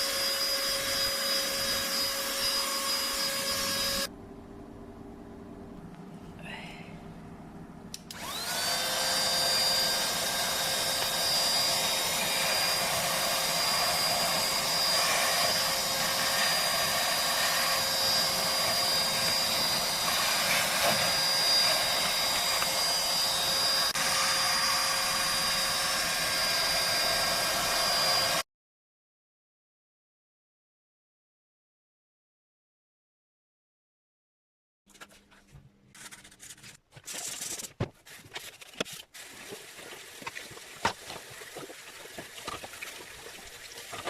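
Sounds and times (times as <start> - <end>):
handheld vacuum cleaner whine: 0.0 - 4.1, 8.0 - 28.5.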